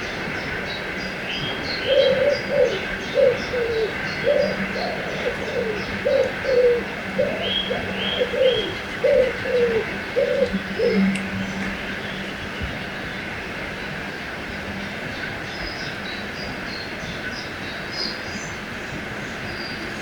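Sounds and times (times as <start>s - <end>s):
small birds chirping: 0.0s - 12.2s
river water rushing: 0.0s - 20.0s
dove cooing: 1.8s - 11.7s.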